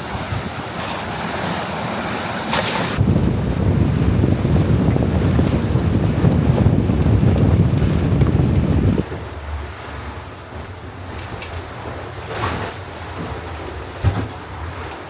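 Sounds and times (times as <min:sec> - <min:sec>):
wind buffeting microphone: 0:00.0 - 0:09.9
water rushing past boat: 0:00.0 - 0:15.0.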